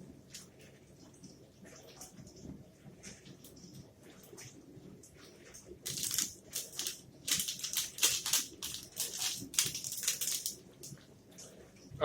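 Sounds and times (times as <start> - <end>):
crunchy chewing: 5.9 - 10.9.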